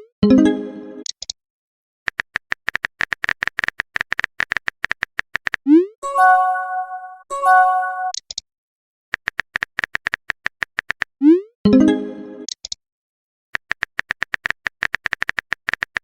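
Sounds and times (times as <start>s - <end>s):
phone keyboard typing clicks: 2.1s - 5.6s, 9.2s - 11.1s, 13.6s - 16.0s
chord-like notification tone: 6.0s - 8.1s.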